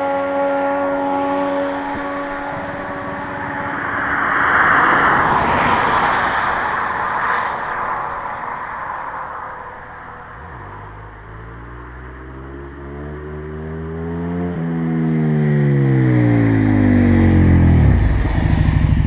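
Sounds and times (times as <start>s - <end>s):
motorcycle passing by: 0.0s - 8.6s, 9.8s - 19.0s
rush of noise: 2.2s - 11.2s, 16.4s - 19.0s.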